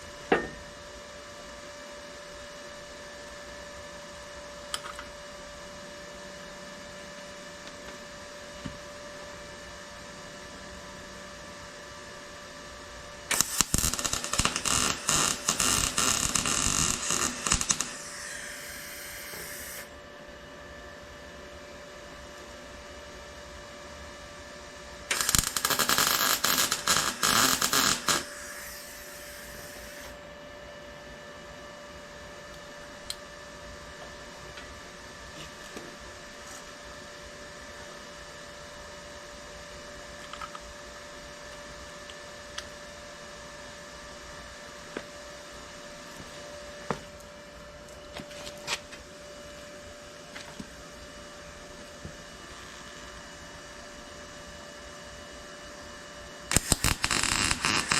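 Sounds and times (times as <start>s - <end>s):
steady electrical hum: 0.0s - 57.9s
crackling arc welding: 13.3s - 19.9s, 25.1s - 30.2s, 56.5s - 57.9s.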